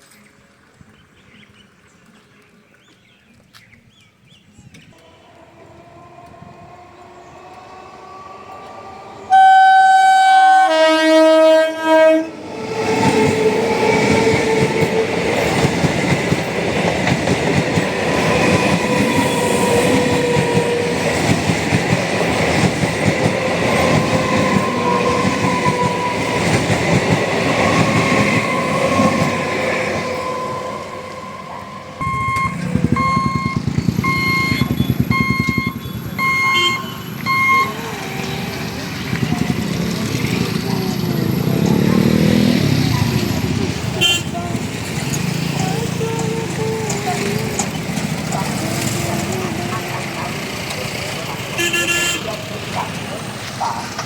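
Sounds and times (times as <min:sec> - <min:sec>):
train wheels rumbling on rails: 0:04.6 - 0:54.0
train horn blasts: 0:05.0 - 0:08.1, 0:09.3 - 0:12.4, 0:18.1 - 0:21.4, 0:34.0 - 0:38.3, 0:43.8 - 0:45.4, 0:51.6 - 0:52.4
electronic beeps: 0:32.0 - 0:37.9.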